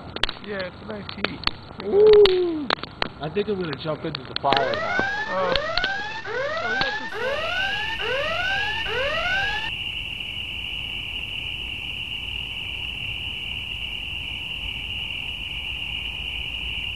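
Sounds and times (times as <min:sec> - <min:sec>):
rising whooping alarm sweeps: 0:04.5 - 0:16.9
crickets chirring: 0:09.7 - 0:16.9.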